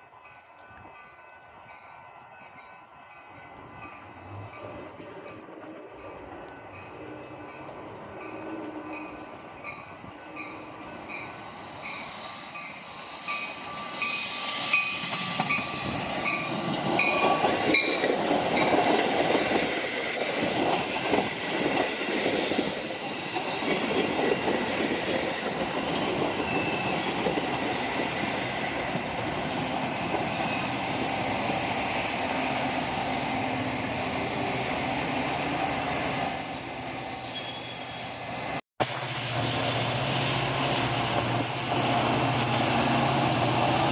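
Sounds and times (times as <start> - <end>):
train rumbling and rattling: 0.0 - 36.8, 38.3 - 43.9
train wheels squealing: 8.9 - 20.2, 20.9 - 28.5, 29.4 - 38.6.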